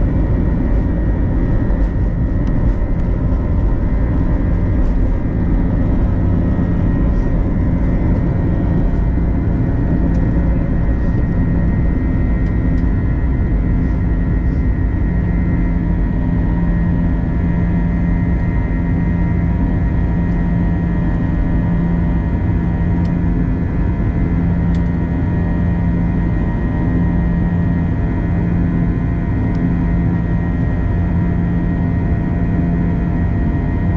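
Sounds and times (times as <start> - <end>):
cabin hum: 0.0 - 17.0
jet engine roar: 0.0 - 33.9.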